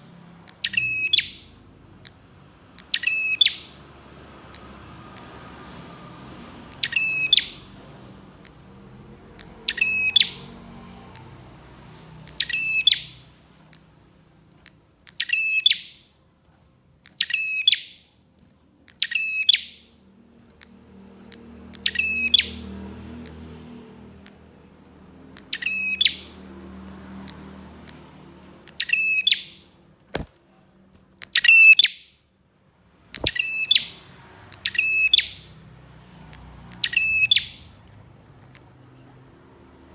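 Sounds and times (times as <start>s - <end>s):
sharp clicks: 0.2s - 31.8s, 33.0s - 35.2s, 35.8s - 39.9s
bird calling: 6.6s - 7.7s, 9.3s - 11.3s, 12.2s - 13.9s, 33.2s - 35.6s, 36.3s - 38.8s.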